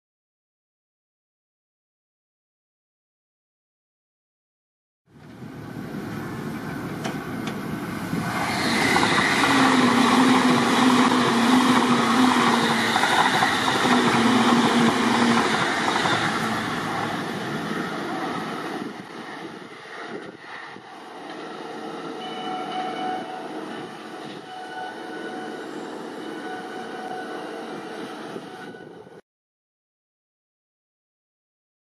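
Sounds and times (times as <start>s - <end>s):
distant train approaching: 5.2s - 29.2s
train wheels rushing on rail: 5.2s - 29.2s.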